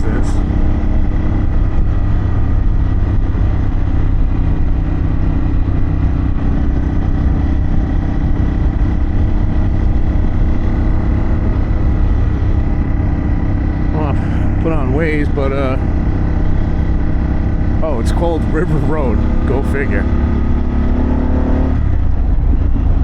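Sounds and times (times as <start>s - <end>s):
motorcycle engine cruising: 0.0s - 23.0s.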